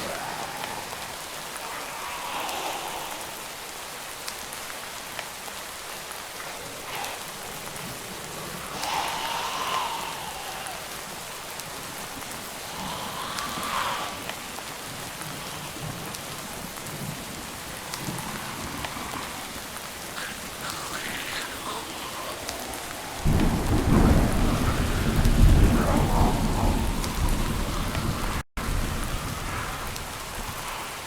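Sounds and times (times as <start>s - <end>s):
steady rain falling: 0.0s - 31.0s
thunder rumbling: 6.4s - 31.0s.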